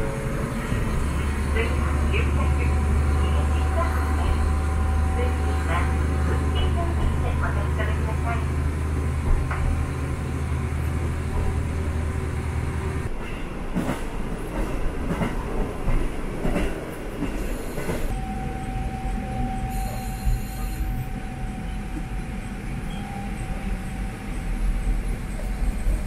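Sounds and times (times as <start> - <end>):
diesel train engine drone: 0.0 - 26.0
train wheel clatter and clicks: 9.2 - 9.8, 13.1 - 18.1
high brake squeal: 17.6 - 21.9.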